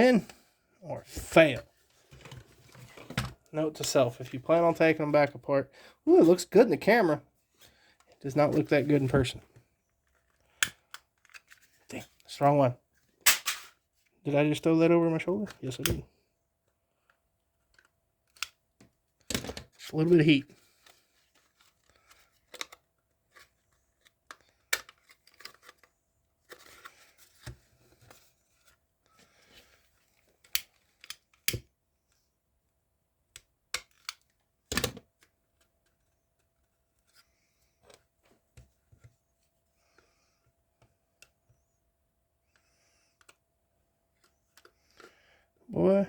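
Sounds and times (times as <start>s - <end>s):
plastic parts clicking and snapping: 17.6s - 18.6s, 21.6s - 25.9s, 33.3s - 35.7s.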